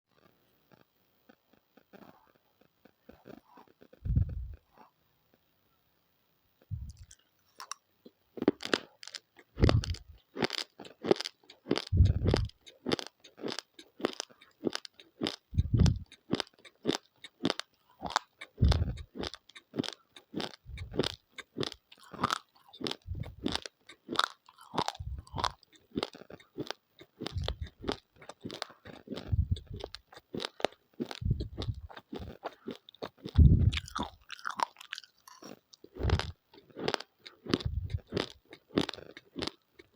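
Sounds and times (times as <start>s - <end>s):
crunchy chewing of rice grains: 6.7s - 39.9s.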